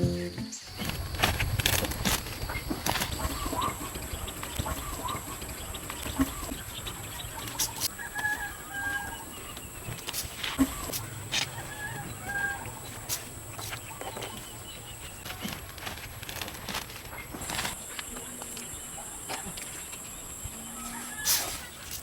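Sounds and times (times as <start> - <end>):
chickens clucking: 2.2 - 22.0.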